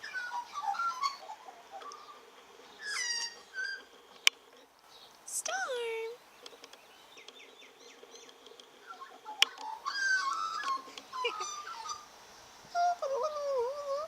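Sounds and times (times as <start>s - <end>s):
magpie warbling: 8.8s - 12.1s.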